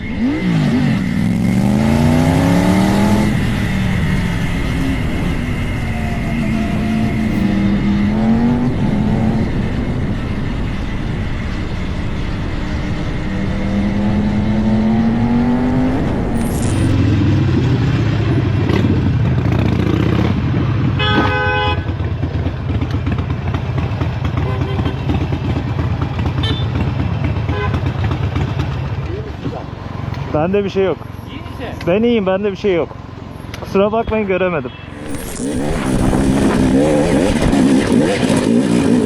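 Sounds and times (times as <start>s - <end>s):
vehicle engine accelerating: 0.0s - 20.9s, 34.9s - 39.0s
car horn honk: 21.0s - 22.0s, 26.4s - 26.8s.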